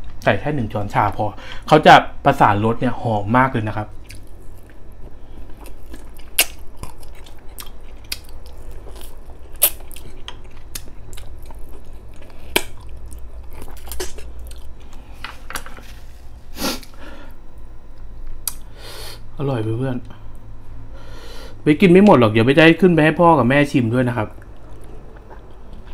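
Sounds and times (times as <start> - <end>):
person chewing and biting ribs: 4.0 - 15.6, 24.4 - 25.9.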